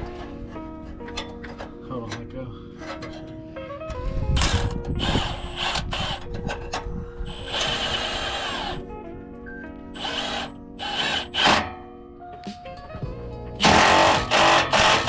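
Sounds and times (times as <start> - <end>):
background music: 0.0 - 15.0
handheld power tool running: 4.4 - 6.2, 7.3 - 8.8, 10.0 - 11.6, 13.6 - 15.0.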